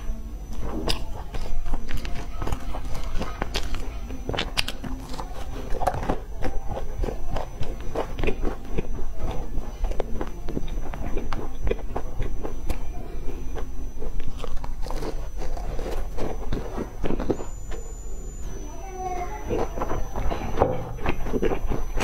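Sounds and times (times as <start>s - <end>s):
person chewing pastry: 0.4s - 22.0s
crisp crunches: 0.6s - 17.9s.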